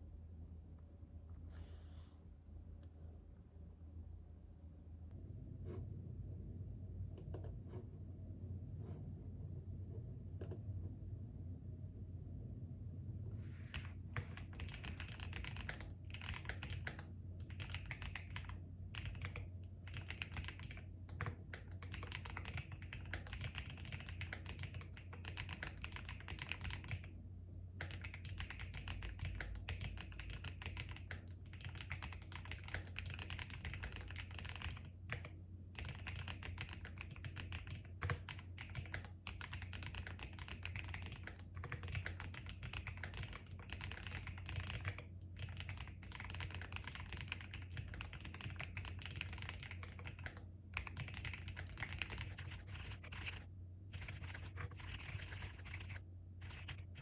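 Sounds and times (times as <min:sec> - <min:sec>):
low steady hum: 0:00.0 - 0:57.0
fast typing on a keyboard: 0:13.7 - 0:27.2, 0:27.8 - 0:57.0.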